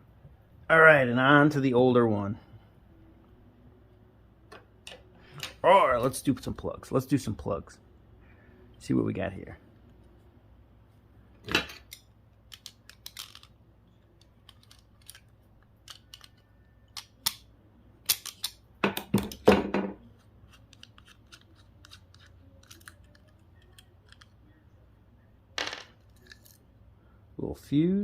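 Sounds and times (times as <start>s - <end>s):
snips cutting plugs: 20.5s - 24.3s.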